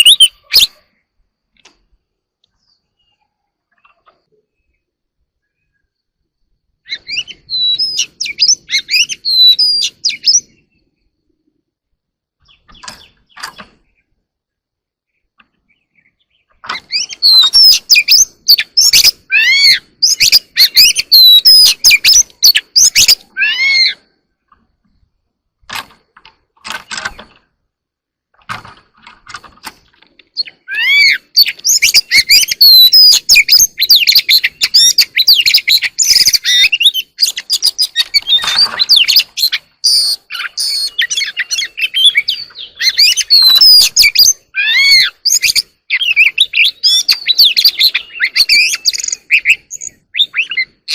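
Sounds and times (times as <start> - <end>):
bird singing whistles: 0.0 - 0.8, 6.8 - 10.8, 16.8 - 24.0, 30.4 - 50.9.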